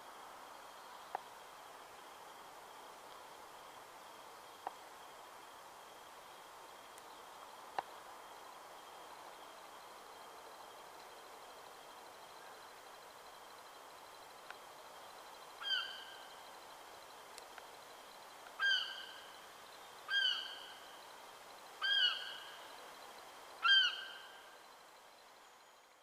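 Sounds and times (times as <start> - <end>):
bird calling with echo: 15.6 - 16.3, 18.6 - 19.3, 20.1 - 20.9, 21.8 - 22.6, 23.6 - 24.5.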